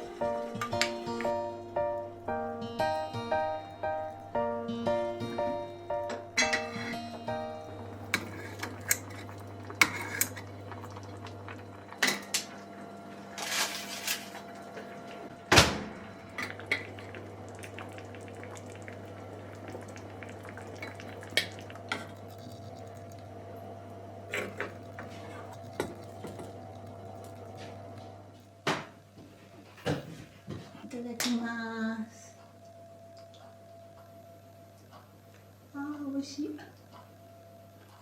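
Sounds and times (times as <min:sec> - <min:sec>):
low steady hum: 0:00.0 - 0:38.0
dishes and utensils clinking: 0:06.1 - 0:07.0.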